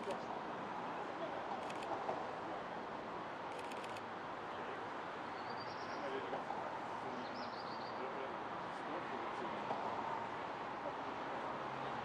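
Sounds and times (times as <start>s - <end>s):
outdoor background noise: 0.0s - 12.0s
faint high clicks: 3.5s - 4.1s.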